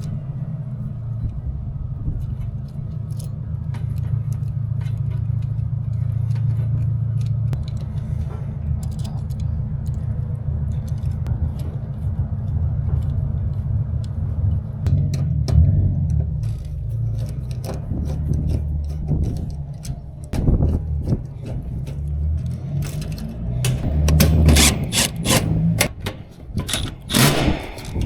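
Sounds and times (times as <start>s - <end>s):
low machine rumble: 0.0s - 28.0s.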